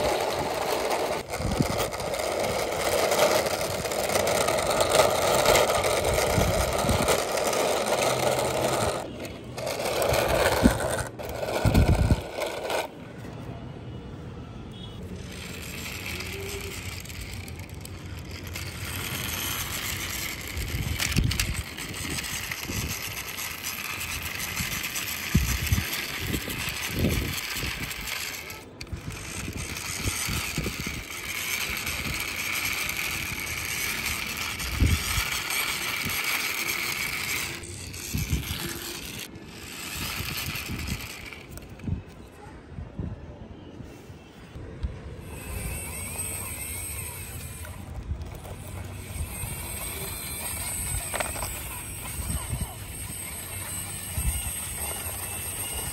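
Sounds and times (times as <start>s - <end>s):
toy wheels rolling on rough wall: 0.0s - 13.4s, 15.1s - 42.3s, 45.2s - 55.9s.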